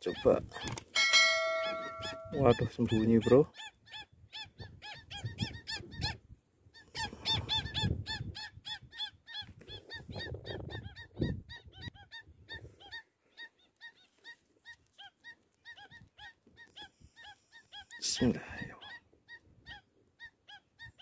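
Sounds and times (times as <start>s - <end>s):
ducks whistling calls: 0.0s - 6.2s
wind buffeting microphone: 4.1s - 6.4s, 7.0s - 12.8s.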